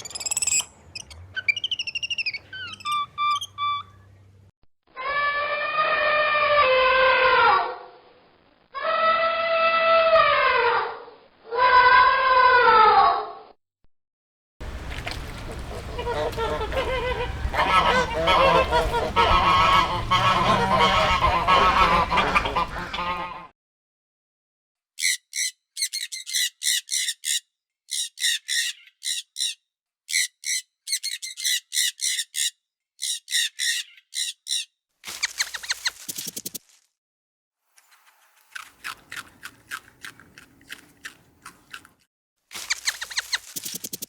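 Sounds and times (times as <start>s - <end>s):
flock of birds honking: 14.6s - 23.5s.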